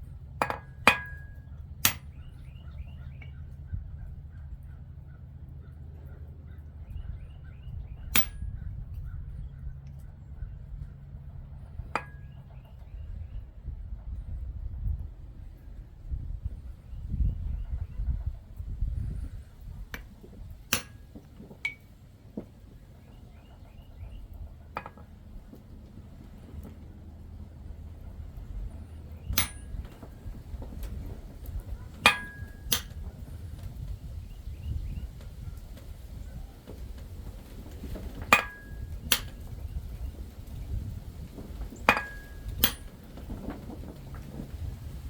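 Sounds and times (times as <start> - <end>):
steady low rumble: 0.0 - 45.0
hammer striking metal on anvil: 0.4 - 2.2, 8.1 - 8.5, 12.0 - 12.3, 20.7 - 21.8, 29.3 - 30.0, 32.0 - 33.0, 38.3 - 39.4, 41.9 - 42.9.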